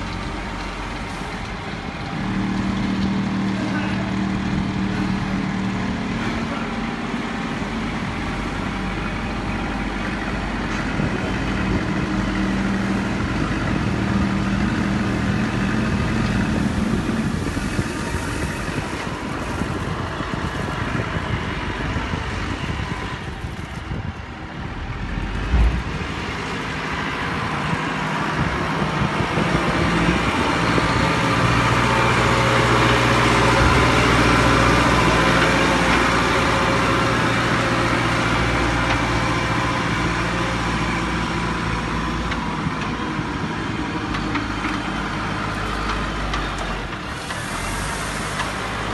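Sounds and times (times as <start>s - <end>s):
construction machinery engine: 0.0s - 48.9s
low thump: 25.4s - 26.1s.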